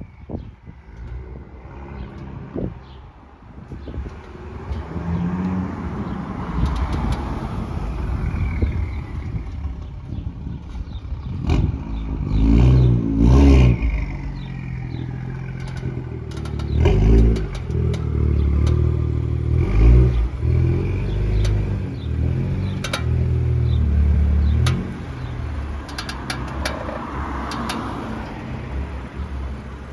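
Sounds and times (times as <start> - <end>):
sharp clicks from chassis: 3.7 - 11.8, 13.5 - 29.2
car engine running: 3.7 - 29.9.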